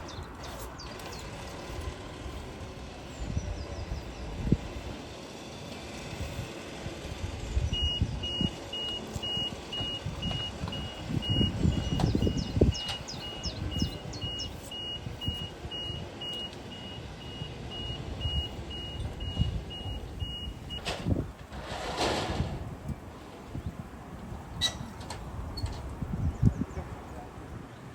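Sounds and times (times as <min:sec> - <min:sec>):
vehicle warning beeper: 0:07.7 - 0:21.2.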